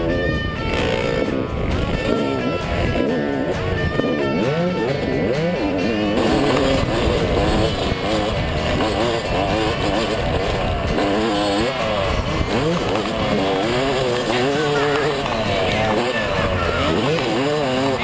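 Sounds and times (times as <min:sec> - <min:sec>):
motocross bike engine revving: 0:00.0 - 0:18.0.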